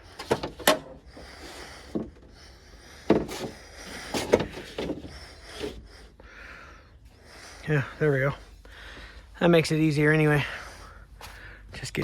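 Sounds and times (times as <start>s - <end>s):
knocks and clunks in truck door: 0.1s - 1.2s, 3.0s - 5.2s.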